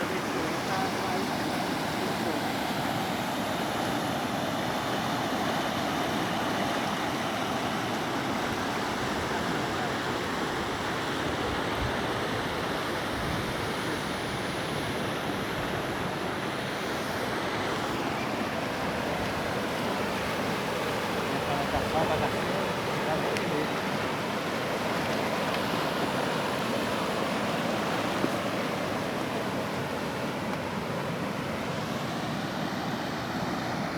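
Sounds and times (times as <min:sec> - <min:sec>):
waterfall rushing: 0:00.0 - 0:02.6.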